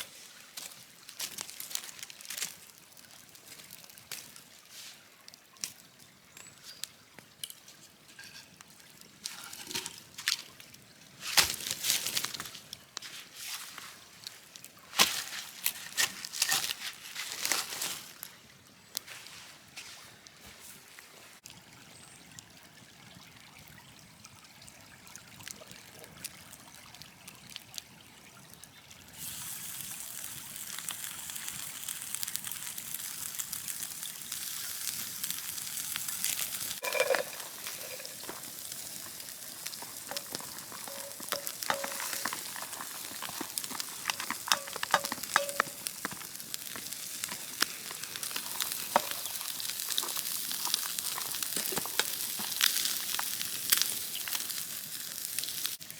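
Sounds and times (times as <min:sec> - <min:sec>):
campfire crackling: 0:00.0 - 0:21.0, 0:25.3 - 0:55.9
food sizzling in a pan: 0:29.2 - 0:55.9.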